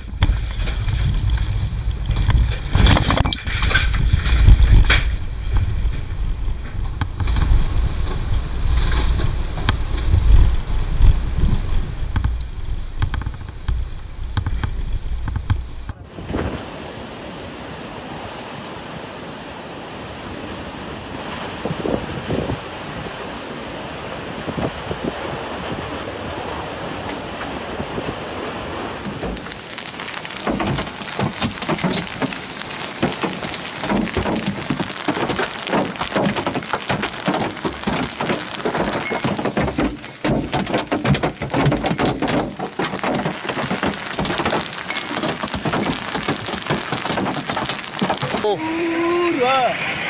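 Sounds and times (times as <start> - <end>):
heavy rain: 0.0 - 50.0
water hitting surfaces: 28.9 - 48.6.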